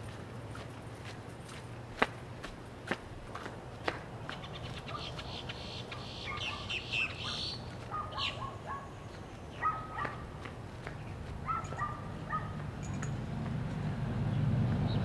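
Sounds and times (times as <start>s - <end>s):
footsteps: 0.0s - 5.3s, 7.6s - 8.1s, 9.1s - 13.8s
birds chirping and calling: 4.2s - 13.2s.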